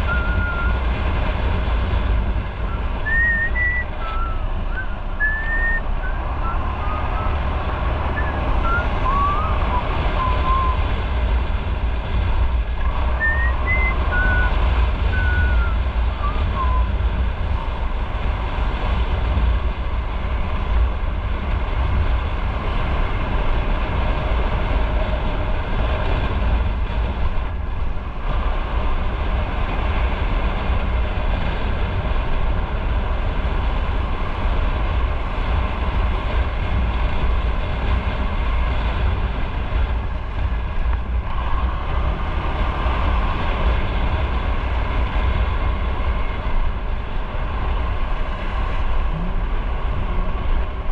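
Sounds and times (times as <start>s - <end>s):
wind rumble on microphone: 0.0s - 50.9s.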